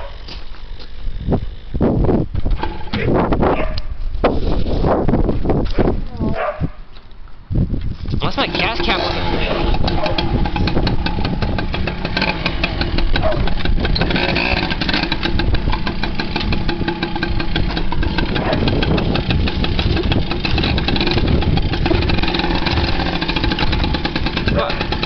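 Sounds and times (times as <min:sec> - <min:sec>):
motorcycle engine idling: 0:08.3 - 0:25.0.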